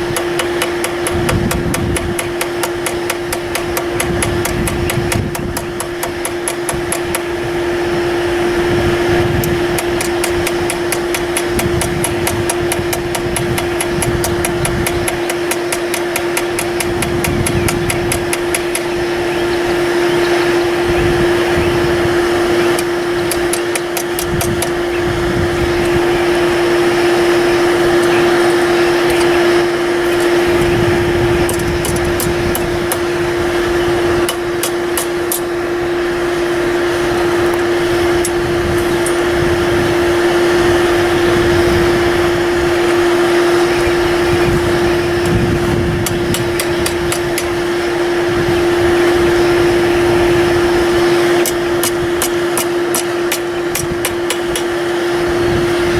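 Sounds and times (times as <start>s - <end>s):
hammer striking steel on anvil: 0.0s - 7.3s, 9.7s - 18.9s, 34.3s - 35.5s, 51.4s - 54.7s
steady mechanical hum: 0.0s - 55.9s.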